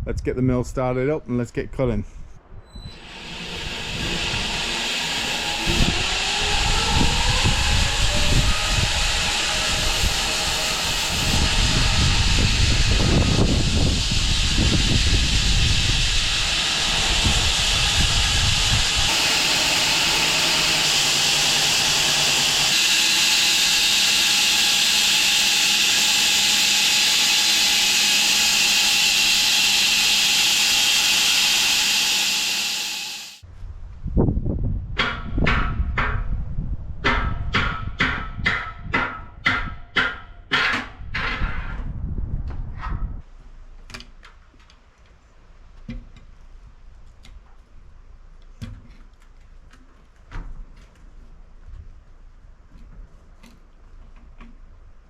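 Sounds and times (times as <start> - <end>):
bandsaw mill running: 2.9 - 33.4.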